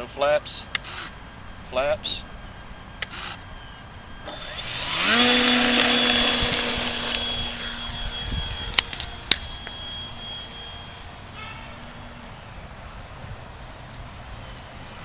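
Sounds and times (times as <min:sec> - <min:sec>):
model plane electric motor whine: 0:02.7 - 0:12.5.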